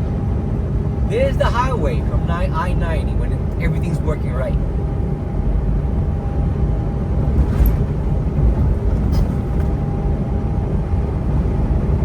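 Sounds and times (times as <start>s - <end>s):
truck engine and tyres rumbling: 0.0s - 12.0s.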